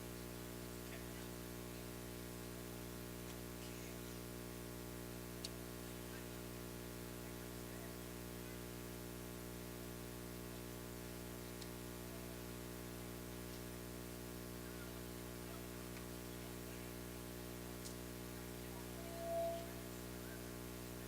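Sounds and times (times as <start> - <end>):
electrical hum: 0.0 - 21.0
faint click: 5.4 - 5.6.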